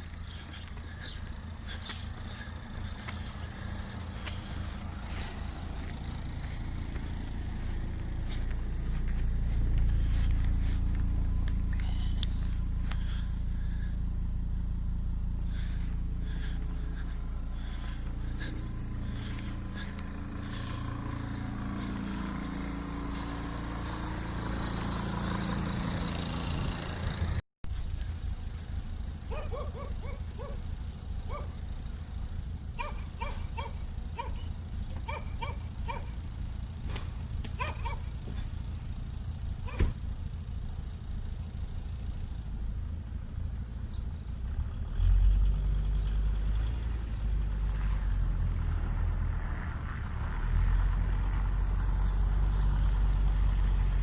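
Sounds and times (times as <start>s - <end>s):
diesel engine running: 0.0s - 54.0s
dog barking: 29.3s - 30.6s, 31.3s - 31.6s, 32.8s - 36.2s, 37.6s - 38.2s, 39.6s - 40.0s.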